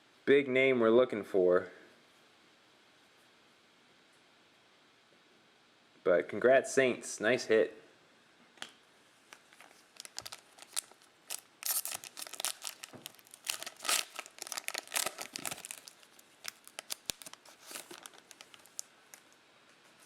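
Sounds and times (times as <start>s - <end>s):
wrapper tearing and crinkling: 9.6s - 19.4s.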